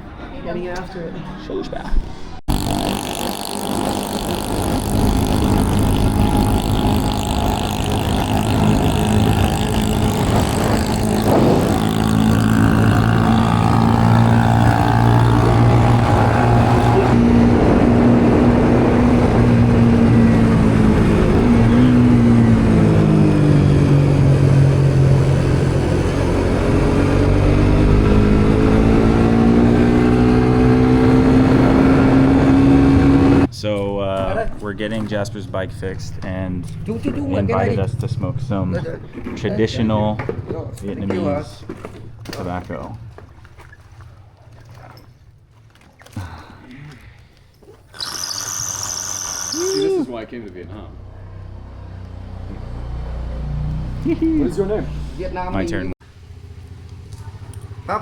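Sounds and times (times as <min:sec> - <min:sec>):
motorbike engine running: 0:02.5 - 0:33.5
road and wind noise: 0:03.6 - 0:33.5, 0:50.1 - 0:58.0.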